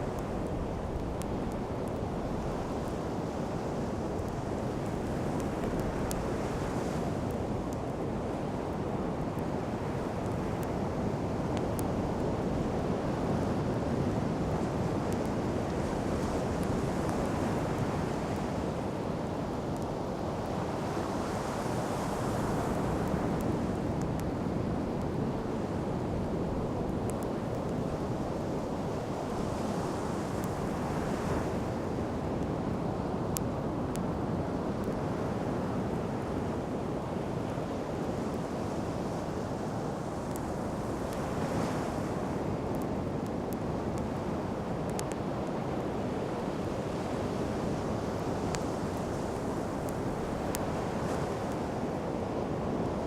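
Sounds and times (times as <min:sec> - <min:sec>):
campfire crackling: 0:00.0 - 0:30.9, 0:39.4 - 0:41.5, 0:42.4 - 0:51.7
sea surf on beach: 0:00.0 - 0:53.0.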